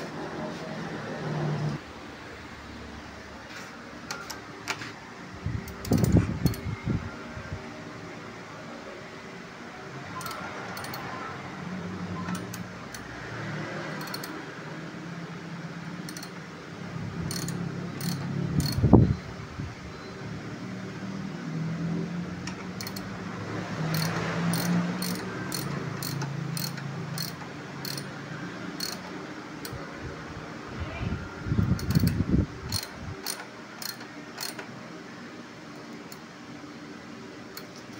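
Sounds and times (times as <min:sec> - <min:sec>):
metal hand tools clicking and clanking: 0:10.2 - 0:11.1, 0:17.3 - 0:18.8, 0:22.8 - 0:23.1, 0:23.9 - 0:28.1, 0:31.8 - 0:34.7.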